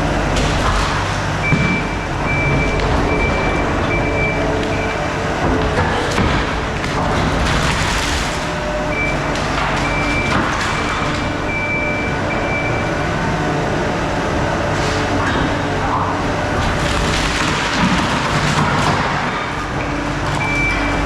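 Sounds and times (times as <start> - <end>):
engine running steadily: 0.0 - 21.0
backup alarm beeping: 1.4 - 5.3, 8.8 - 13.0, 20.4 - 21.0.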